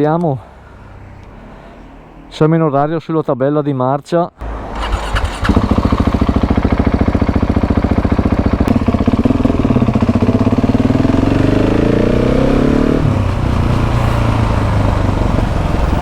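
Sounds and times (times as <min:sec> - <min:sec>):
motorcycle engine revving: 0:04.4 - 0:16.0.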